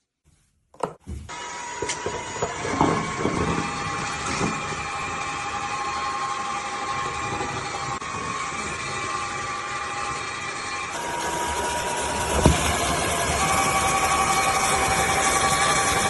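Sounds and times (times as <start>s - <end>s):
vacuum cleaner motor humming: 1.3s - 16.0s.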